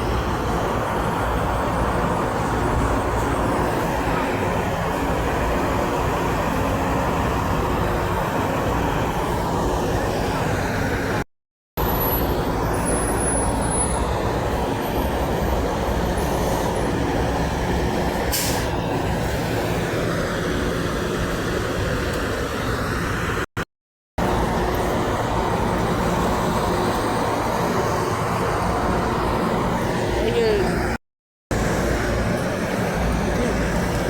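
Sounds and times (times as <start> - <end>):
diesel truck engine rumbling: 0.0 - 11.2, 24.2 - 34.0
air brake hiss: 18.3 - 18.7.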